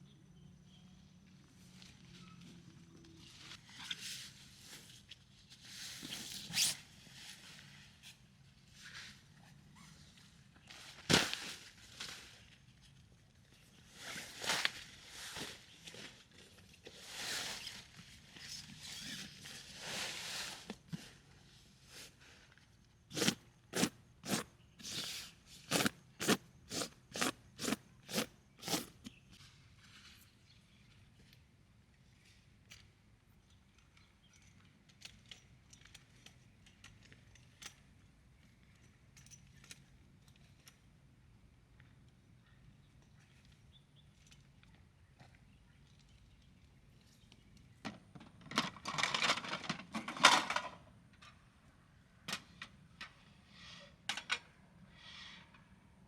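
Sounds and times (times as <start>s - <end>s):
rustling crunching noises: 23.1s - 29.4s.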